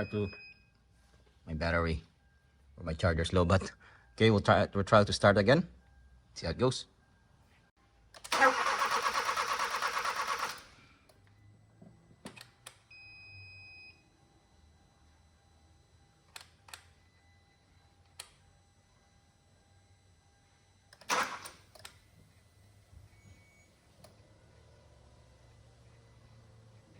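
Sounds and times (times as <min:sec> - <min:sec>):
short steady beep: 0:00.0 - 0:00.8
starter cranking engine: 0:08.2 - 0:10.8, 0:21.0 - 0:21.6.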